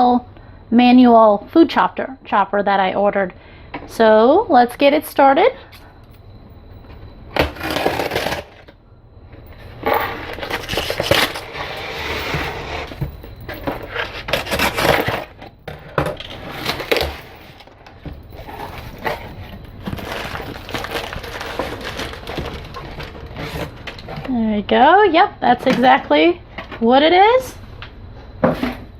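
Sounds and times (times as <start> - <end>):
packaging being torn and rustled: 19.8 - 24.1.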